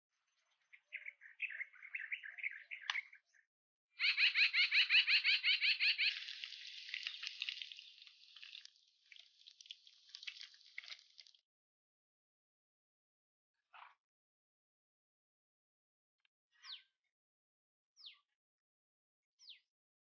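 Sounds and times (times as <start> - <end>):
songbirds singing: 0.2 - 8.7, 18.0 - 18.3, 19.4 - 19.6
fast bird trill: 4.0 - 6.4.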